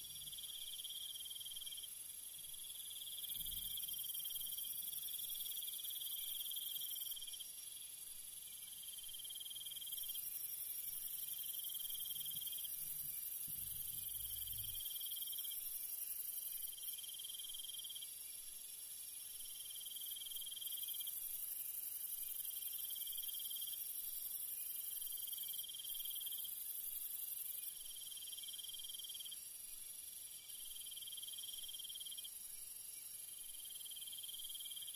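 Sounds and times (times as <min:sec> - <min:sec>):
high-pitched insect hiss: 0:00.0 - 0:34.9
crickets trilling: 0:08.9 - 0:18.1.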